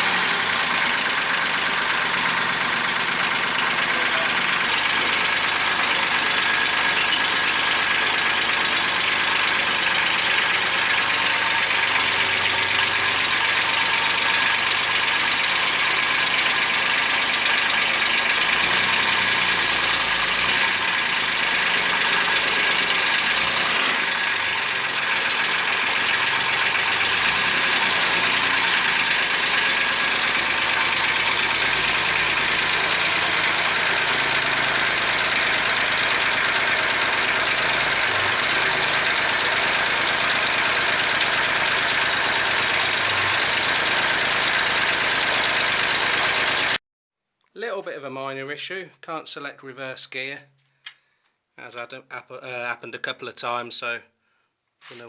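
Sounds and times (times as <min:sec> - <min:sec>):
tractor engine running: 0:00.0 - 0:46.8.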